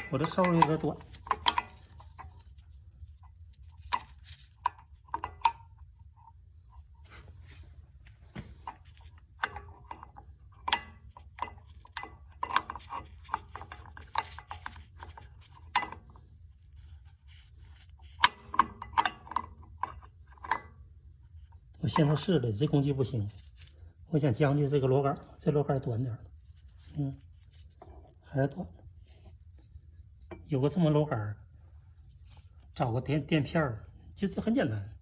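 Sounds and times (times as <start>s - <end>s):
metal tools clinking on brake caliper: 0.0s - 2.2s.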